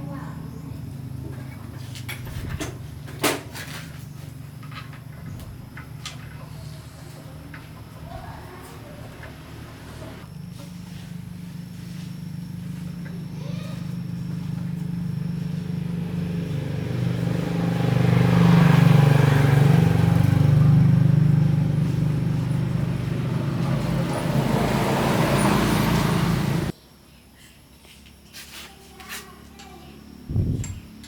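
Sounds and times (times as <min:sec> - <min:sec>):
air compressor motor running: 0:05.2 - 0:26.7.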